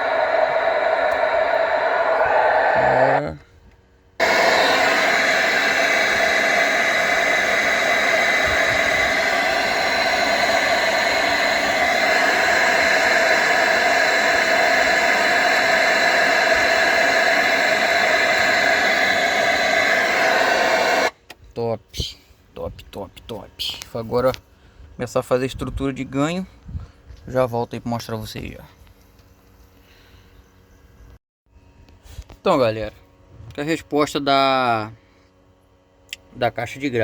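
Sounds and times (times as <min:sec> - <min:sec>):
test noise hiss through speakers: 0:00.0 - 0:03.4, 0:04.2 - 0:24.4.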